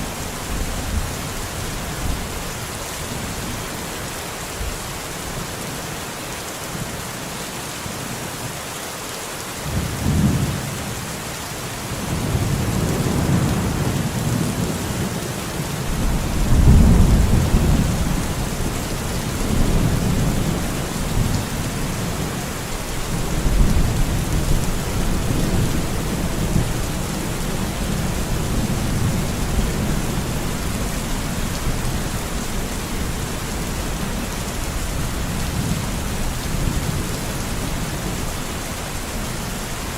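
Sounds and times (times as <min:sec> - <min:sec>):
rain on forest canopy: 0:00.0 - 0:39.9
rolling thunder: 0:15.8 - 0:21.4.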